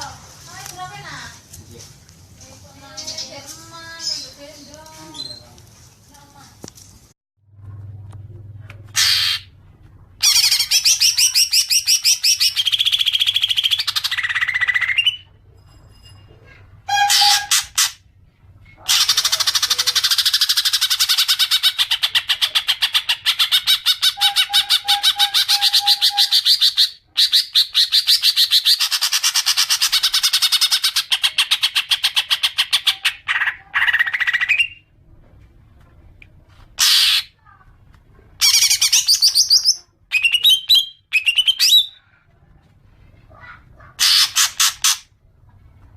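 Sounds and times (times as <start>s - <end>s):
bird rapid chattering: 18.9s - 34.8s, 43.4s - 45.1s.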